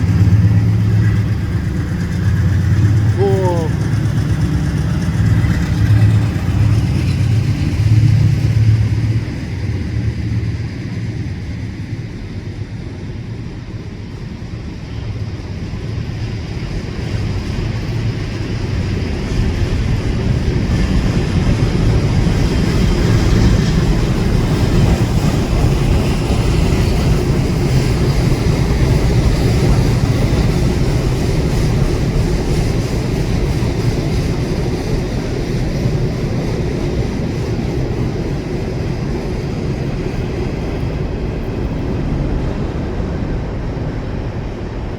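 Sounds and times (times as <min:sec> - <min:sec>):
low engine hum: 0:00.0 - 0:12.9
freight cars rolling by: 0:00.0 - 0:44.9.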